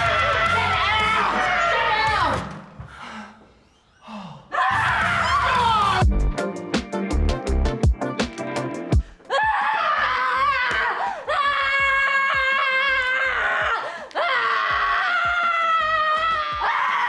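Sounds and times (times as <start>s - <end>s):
music beat: 6.0s - 9.2s.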